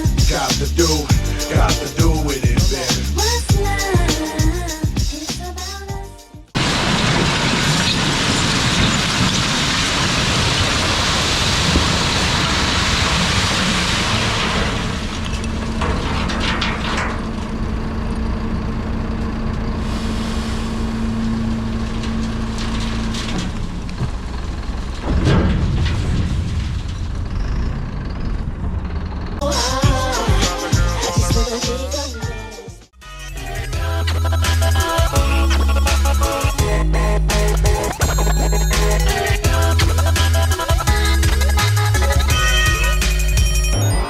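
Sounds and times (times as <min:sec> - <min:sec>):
truck engine running: 0:00.0 - 0:44.0.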